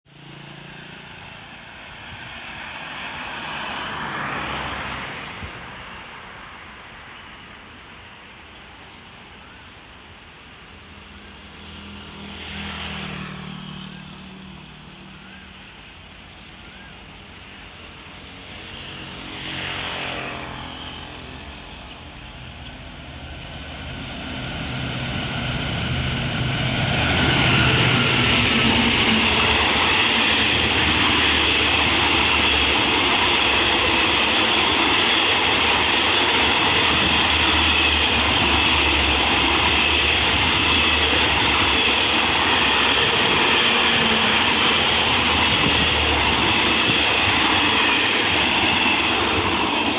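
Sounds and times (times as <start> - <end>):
train wheels rushing on rails: 10.7 - 49.9
locomotive engine drone: 13.8 - 49.9.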